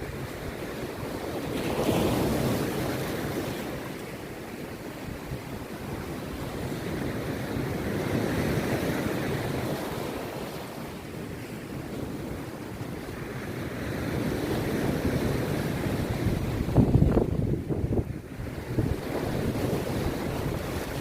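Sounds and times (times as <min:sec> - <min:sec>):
wind buffeting microphone: 0:11.1 - 0:21.0
surf breaking on beach: 0:12.7 - 0:21.0.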